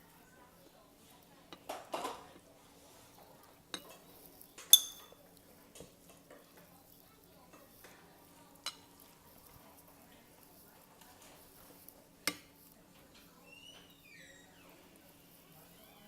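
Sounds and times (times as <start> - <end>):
utensils clinking against a bowl: 3.7 - 5.2.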